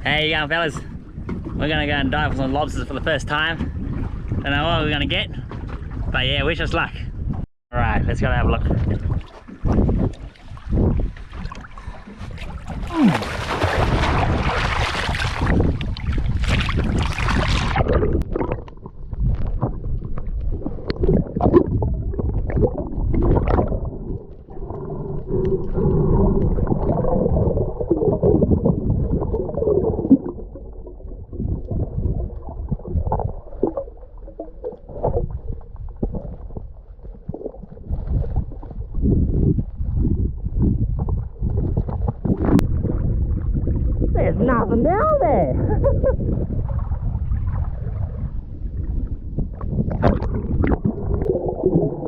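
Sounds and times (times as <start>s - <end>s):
underwater knocks: 0.9s - 2.5s, 48.8s - 52.0s
water splashing: 8.6s - 39.0s, 41.1s - 52.0s
underwater gurgling and bubbling: 8.7s - 52.0s.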